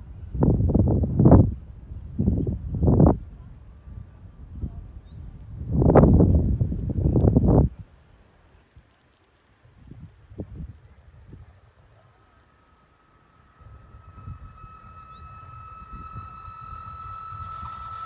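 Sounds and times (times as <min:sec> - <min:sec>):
wind buffeting microphone: 0:00.0 - 0:07.9, 0:13.4 - 0:18.0
crickets trilling: 0:00.0 - 0:18.0
approaching train tone and rumble: 0:10.4 - 0:18.0.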